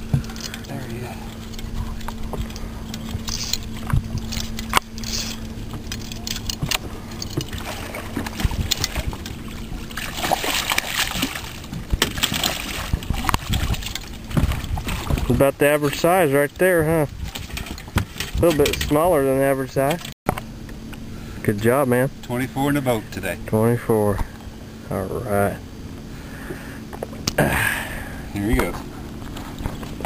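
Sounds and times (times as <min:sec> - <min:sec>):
water splashing and rushing: 0:00.0 - 0:20.2
knocks and rattles on boat: 0:00.0 - 0:20.4, 0:28.5 - 0:30.0
steady low hum: 0:00.0 - 0:30.0.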